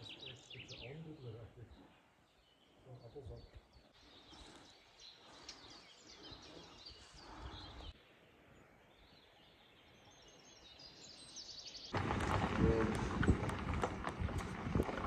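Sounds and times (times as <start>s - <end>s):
birds chirping: 0.0s - 15.0s
loud noisy clattering: 12.0s - 15.0s.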